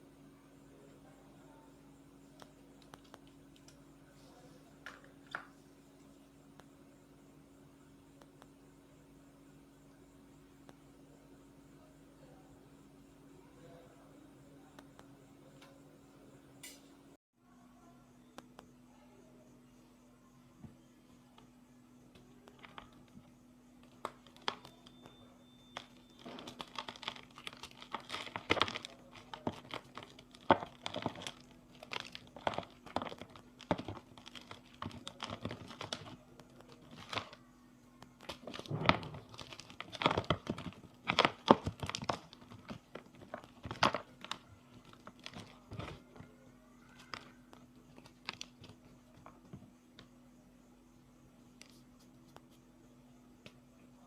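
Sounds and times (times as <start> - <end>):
chalk blocks crunching: 25.8 - 37.4, 38.2 - 46.2.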